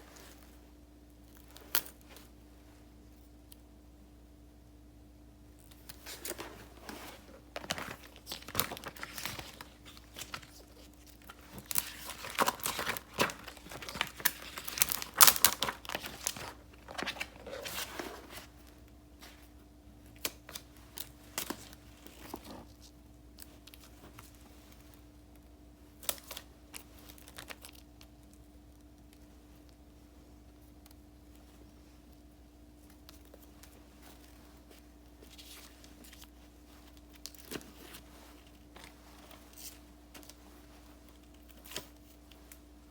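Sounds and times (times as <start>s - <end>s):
paper rustling and crinkling: 5.6s - 19.6s, 20.2s - 25.3s, 25.9s - 42.9s.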